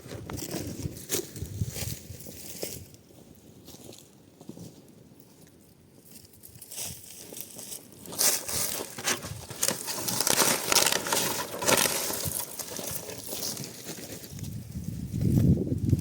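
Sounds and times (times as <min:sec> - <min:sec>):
crinkling and crunching: 0:00.0 - 0:03.0, 0:06.1 - 0:16.0.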